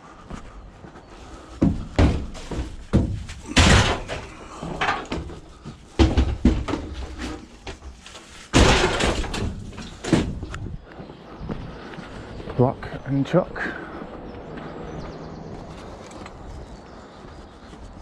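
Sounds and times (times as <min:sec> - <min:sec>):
scrap metal clanking: 0:02.1 - 0:10.5
metal scraping rattle: 0:06.6 - 0:10.4.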